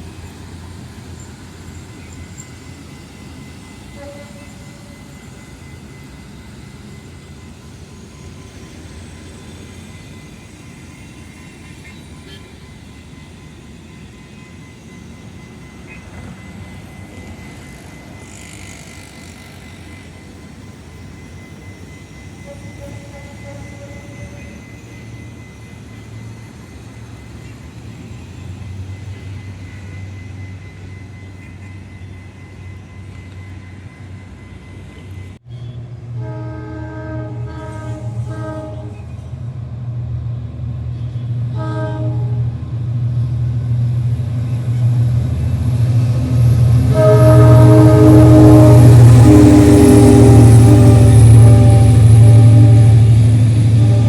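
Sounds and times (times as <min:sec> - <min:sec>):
locomotive engine drone: 0:00.0 - 0:54.0
locomotive horn blasts: 0:03.8 - 0:05.2, 0:22.4 - 0:24.6, 0:36.1 - 0:39.2, 0:41.5 - 0:42.8, 0:46.4 - 0:54.0.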